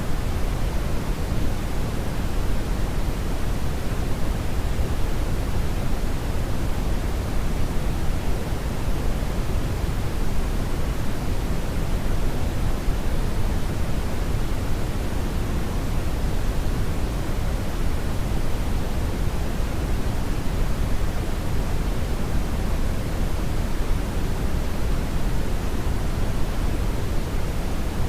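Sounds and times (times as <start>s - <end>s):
brownian noise rumbling hiss: 0.0s - 28.0s.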